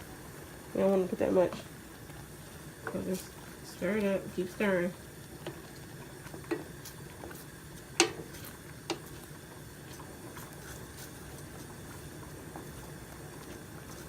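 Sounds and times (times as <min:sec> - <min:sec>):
utensil knocking against pot: 0:08.0 - 0:08.2.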